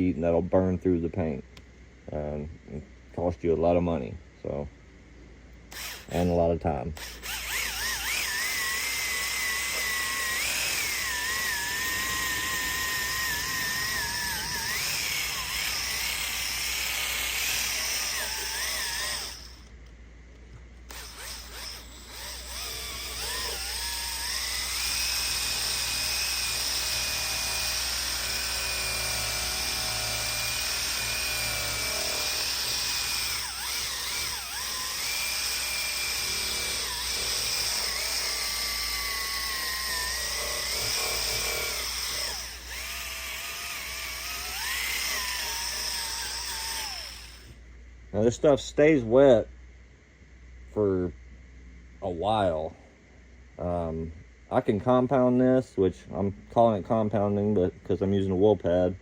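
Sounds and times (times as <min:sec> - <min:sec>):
rotary buffer motor whining: 0:05.7 - 0:06.3, 0:07.0 - 0:19.9, 0:20.7 - 0:47.6.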